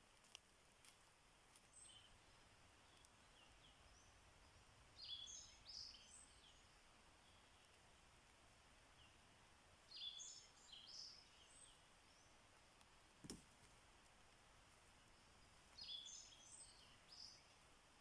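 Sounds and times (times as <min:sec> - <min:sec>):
background hiss: 0:00.0 - 0:18.0
songbird warbling: 0:05.0 - 0:07.6, 0:09.9 - 0:12.3, 0:15.8 - 0:17.5.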